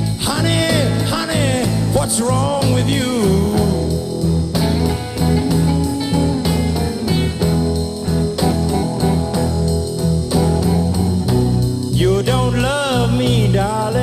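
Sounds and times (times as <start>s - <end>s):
bass line: 0.0s - 14.0s
blues guitar playing: 0.0s - 14.0s
person singing: 0.1s - 4.3s, 11.9s - 14.0s.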